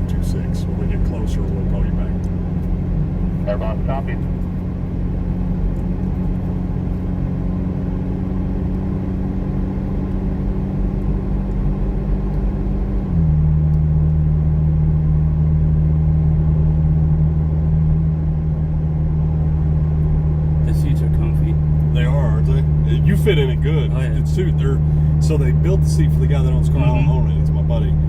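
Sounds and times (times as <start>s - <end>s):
car engine hum from inside cabin: 0.0s - 28.0s.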